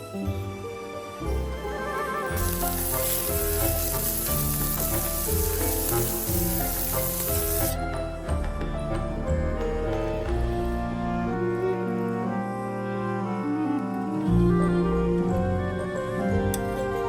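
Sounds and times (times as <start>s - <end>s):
background music: 0.0s - 17.0s
food sizzling in a pan: 2.4s - 7.8s.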